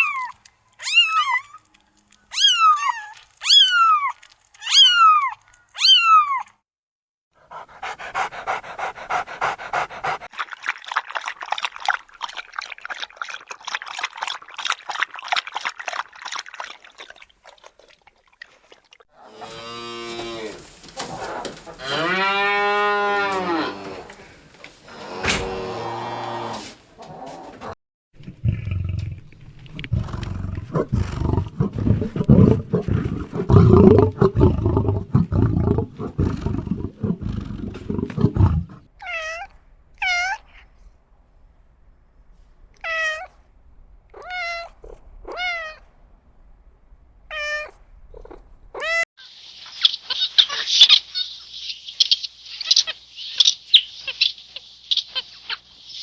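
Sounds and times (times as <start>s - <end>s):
animal calls rising and falling: 19.2s - 24.1s
animal growling: 24.9s - 38.9s, 47.9s - 48.9s.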